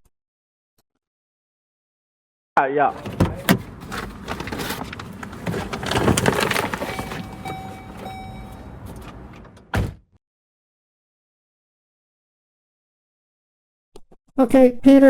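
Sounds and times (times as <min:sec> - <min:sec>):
person moving about: 0:02.9 - 0:09.7
car door clicks and knocks: 0:02.9 - 0:10.0
car door thump: 0:02.9 - 0:10.0.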